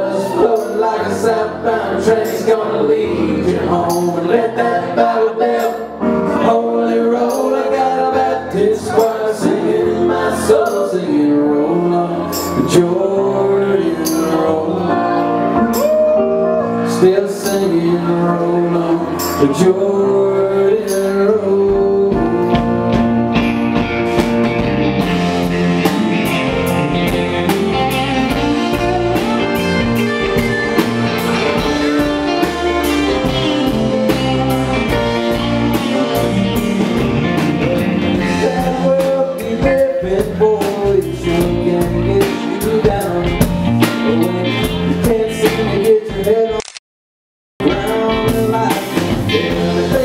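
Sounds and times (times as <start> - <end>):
guitar: 0.0 - 46.8, 47.6 - 50.0
drum kit beat: 21.7 - 46.5, 47.6 - 50.0.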